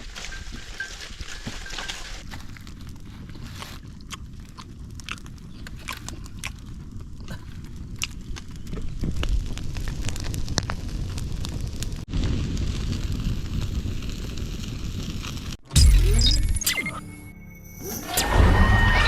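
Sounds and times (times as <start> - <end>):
wood fire crackling: 0.0 - 15.6
fire popping: 0.0 - 16.7
low rumble of flames: 1.7 - 15.6.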